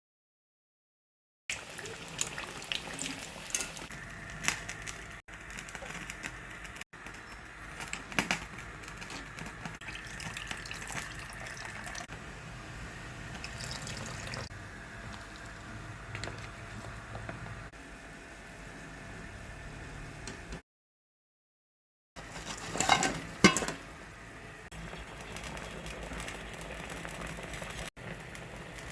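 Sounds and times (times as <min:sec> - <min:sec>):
kitchen utensils clinking: 0:02.0 - 0:03.9, 0:22.4 - 0:23.9.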